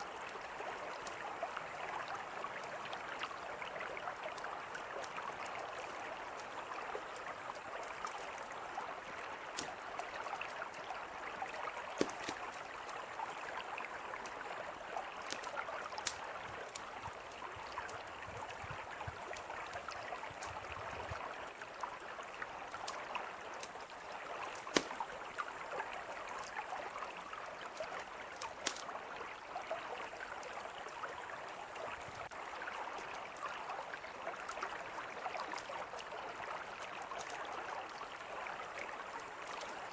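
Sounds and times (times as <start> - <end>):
campfire crackling and popping: 9.2 - 11.0, 11.7 - 12.9, 13.6 - 18.2, 22.8 - 25.6, 27.8 - 28.9.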